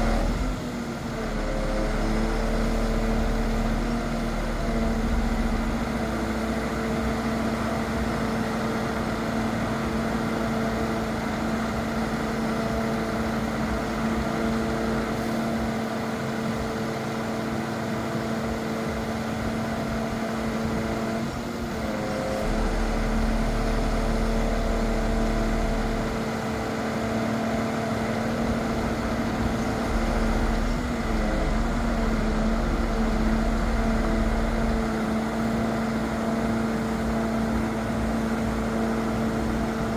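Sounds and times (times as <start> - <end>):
truck engine hum: 0.0 - 39.9
deep rumble: 21.7 - 26.3, 27.8 - 39.9.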